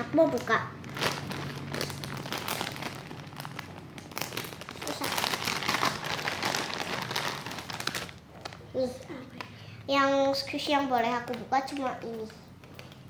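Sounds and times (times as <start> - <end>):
plastic bag crinkling: 0.2 - 8.8.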